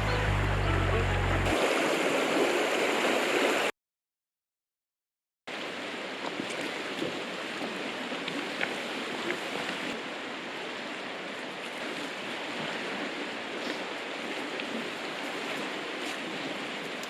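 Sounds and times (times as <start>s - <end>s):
music with low bass line: 0.0s - 1.5s
river water rushing: 0.0s - 3.7s, 5.5s - 17.0s.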